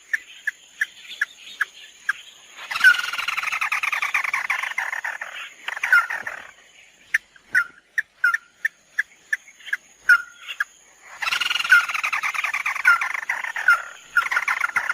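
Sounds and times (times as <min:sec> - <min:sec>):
bird chattering trill: 0:00.0 - 0:06.5, 0:07.1 - 0:14.9.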